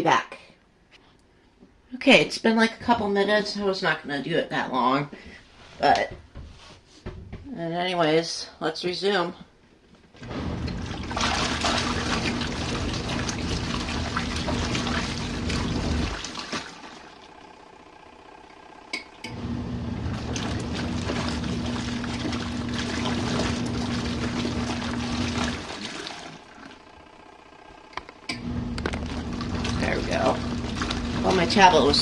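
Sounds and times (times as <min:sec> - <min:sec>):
washing machine motor humming: 0:10.0 - 0:32.0
water sloshing: 0:10.2 - 0:17.8, 0:18.4 - 0:27.2, 0:28.4 - 0:32.0.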